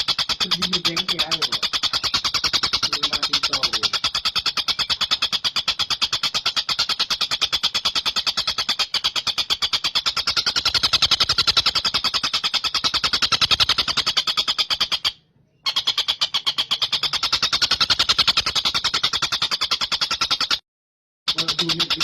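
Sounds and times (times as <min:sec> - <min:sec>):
kingfisher rattling trill: 0:00.0 - 0:20.6, 0:21.3 - 0:22.0.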